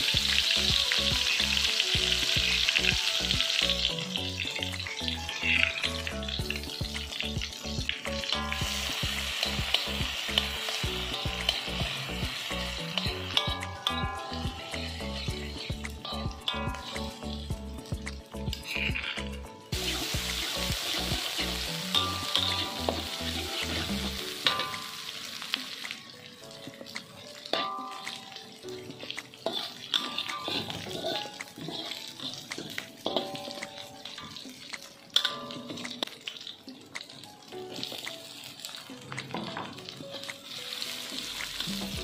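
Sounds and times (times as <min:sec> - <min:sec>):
background music: 0:00.0 - 0:42.0
paste sizzling in hot oil: 0:00.0 - 0:42.0
metal spoon scraping a pan: 0:08.2 - 0:17.5, 0:18.5 - 0:25.2, 0:27.5 - 0:36.2.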